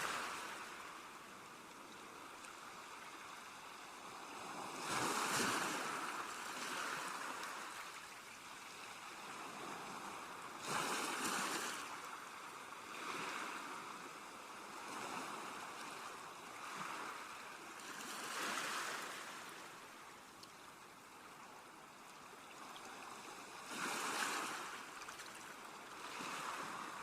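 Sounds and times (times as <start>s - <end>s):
sea waves washing: 2.1s - 8.0s.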